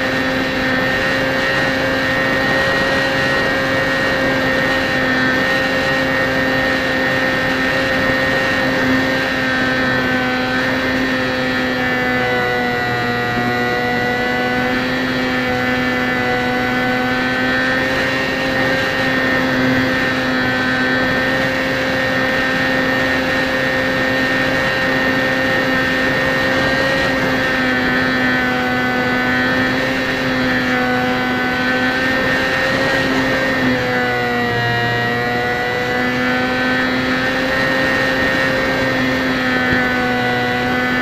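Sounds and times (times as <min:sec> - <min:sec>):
electric motor and propeller whining: 0:00.0 - 0:41.0.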